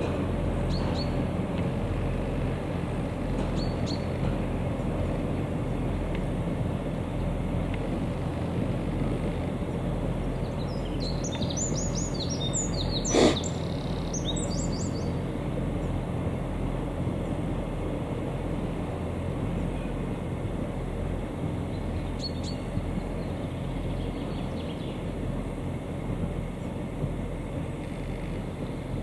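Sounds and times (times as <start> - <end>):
songbirds chirping: 0.0 - 29.0
train rumbling along track: 0.0 - 29.0.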